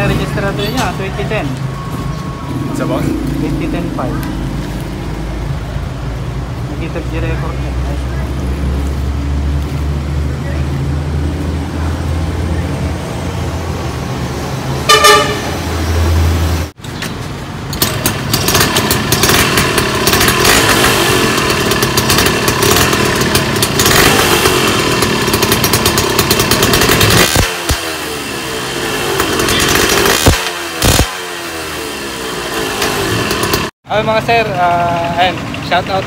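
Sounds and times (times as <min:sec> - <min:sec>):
two-stroke engine revving: 0:02.4 - 0:06.0, 0:17.7 - 0:33.8
vehicle horn toot: 0:14.8 - 0:15.7, 0:29.3 - 0:30.2.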